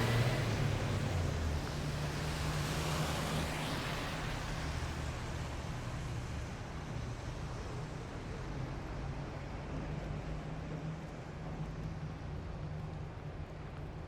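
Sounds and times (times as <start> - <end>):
vehicle engines rumbling: 0.0 - 4.2.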